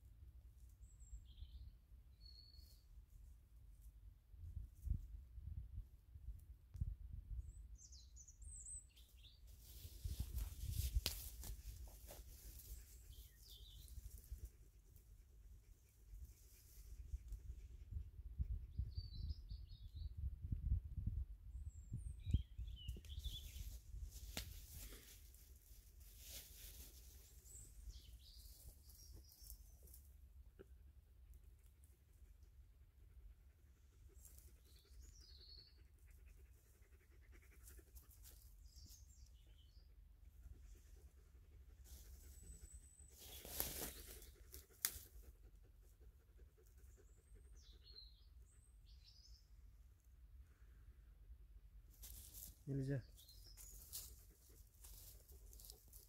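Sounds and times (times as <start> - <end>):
faint small bird chirps: 0.6 - 3.2, 7.3 - 11.7, 15.6 - 25.2, 34.0 - 39.9, 40.6 - 45.1, 45.8 - 49.6, 52.1 - 56.0
light crackles and rustles: 9.5 - 15.1, 23.0 - 27.8, 28.4 - 30.2, 43.1 - 45.4, 51.9 - 52.6, 53.5 - 56.0
bird chirps: 46.8 - 49.6.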